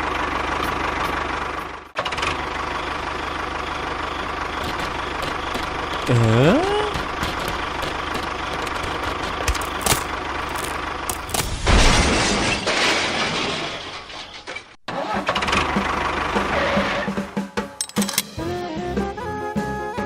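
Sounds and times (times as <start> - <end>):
engine running: 0.0 - 11.6, 15.2 - 19.2.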